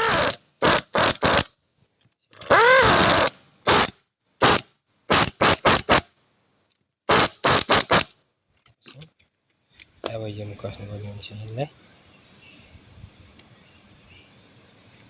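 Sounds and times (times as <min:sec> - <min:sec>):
power drill whirring: 0:00.0 - 0:01.4, 0:02.4 - 0:03.9.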